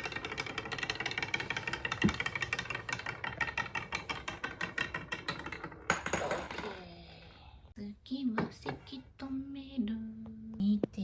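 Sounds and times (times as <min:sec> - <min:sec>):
marbles rattling down wooden track: 0:00.0 - 0:06.9.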